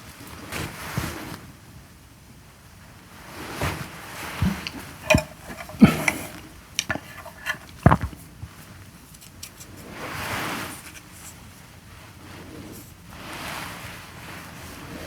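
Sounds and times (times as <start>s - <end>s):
utensils clinking against dishes: 4.4s - 8.3s.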